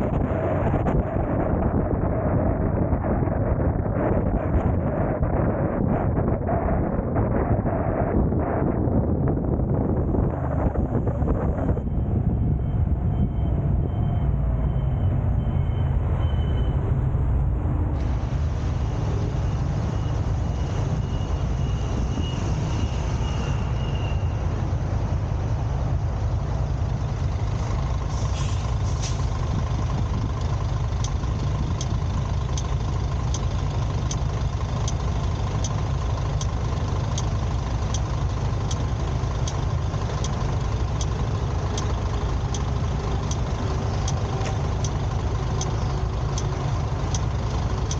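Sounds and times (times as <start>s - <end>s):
car engine and road rumble: 0.0s - 47.9s
regular sharp ticks: 29.8s - 47.9s.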